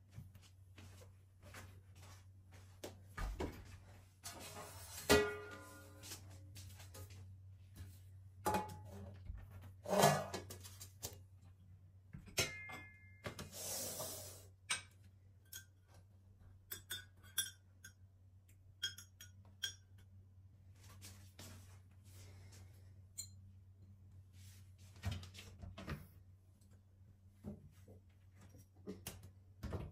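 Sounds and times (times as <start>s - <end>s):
dishes and cutlery clinking: 12.3s - 13.2s, 16.6s - 18.1s, 18.7s - 20.1s.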